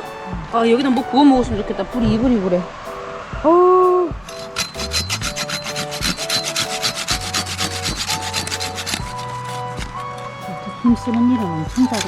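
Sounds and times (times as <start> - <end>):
faint melodic notes: 0.0 - 6.6, 9.4 - 12.0
rapid rhythmic scraping strokes: 4.2 - 12.0.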